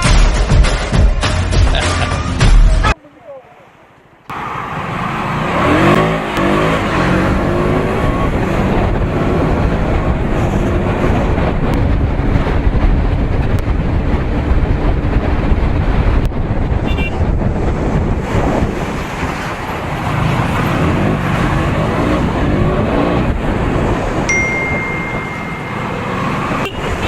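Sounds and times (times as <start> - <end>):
wind and road noise: 0.0 - 27.0.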